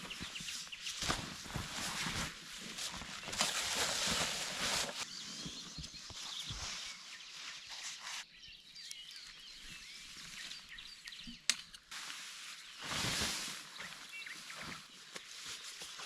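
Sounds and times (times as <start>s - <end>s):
soft rustling: 0.0s - 8.2s, 11.9s - 16.0s
faint bird chirps: 5.0s - 11.5s, 12.4s - 16.0s.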